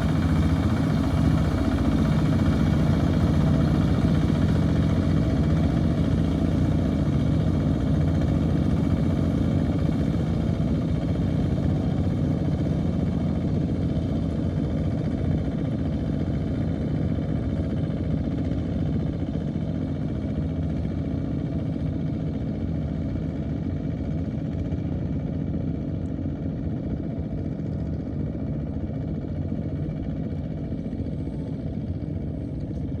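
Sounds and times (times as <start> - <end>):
tractor engine running: 0.0 - 15.6.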